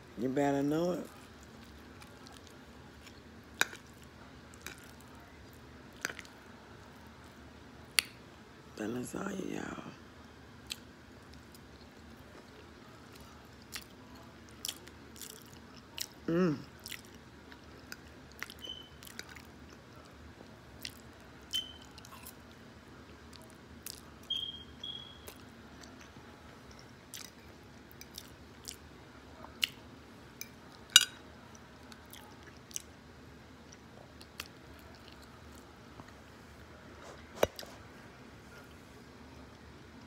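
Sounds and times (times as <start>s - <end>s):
person chewing: 12.3s - 20.1s, 20.8s - 22.4s, 23.3s - 24.1s, 25.2s - 28.8s, 33.7s - 35.7s.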